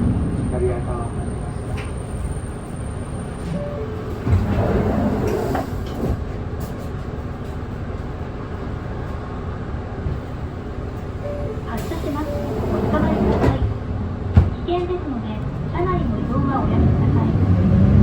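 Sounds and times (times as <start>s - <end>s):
bus diesel engine rumbling: 0.0s - 18.0s.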